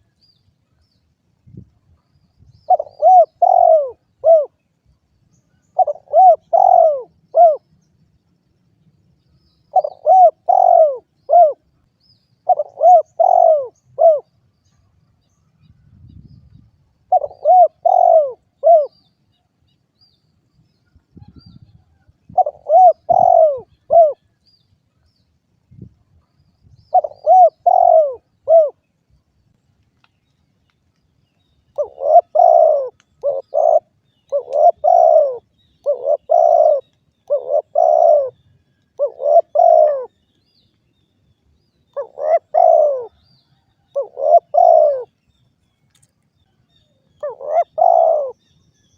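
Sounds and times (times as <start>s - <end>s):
dove cooing: 2.6s - 4.6s, 5.8s - 7.6s, 9.7s - 11.7s, 12.4s - 14.4s, 17.1s - 19.0s, 22.3s - 24.3s, 26.9s - 28.8s, 31.7s - 38.4s, 39.0s - 40.1s, 41.9s - 45.1s, 47.2s - 48.4s.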